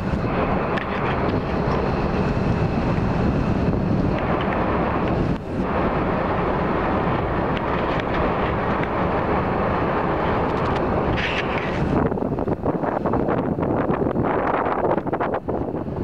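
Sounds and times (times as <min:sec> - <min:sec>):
ferry engine rumble: 0:00.0 - 0:16.0
wind buffeting microphone: 0:00.0 - 0:16.0.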